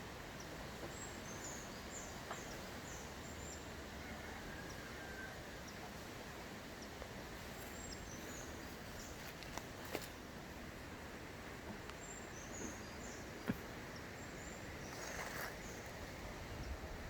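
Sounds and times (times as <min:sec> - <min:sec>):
steady background hiss: 0:00.0 - 0:17.0
faint bird chirps: 0:12.0 - 0:16.8.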